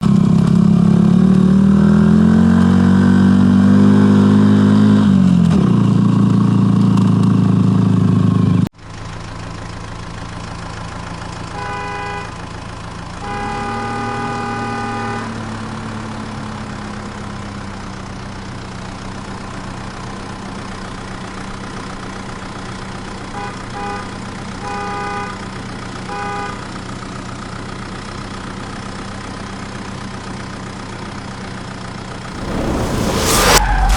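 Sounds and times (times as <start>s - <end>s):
loud vehicle engine revving: 0.2s - 6.4s, 32.3s - 33.9s
car horn honking: 11.6s - 12.4s, 13.2s - 15.4s
steady engine drone: 32.3s - 33.9s.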